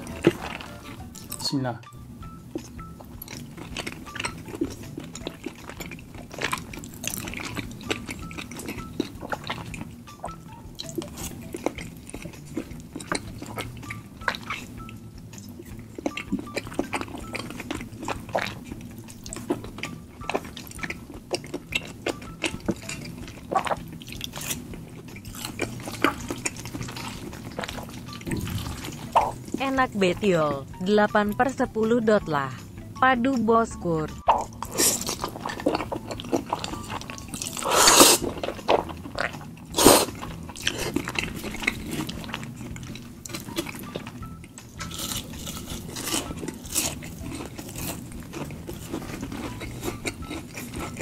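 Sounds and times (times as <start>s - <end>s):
chewing with wet mouth clicks: 2.5s - 29.6s, 34.3s - 51.0s.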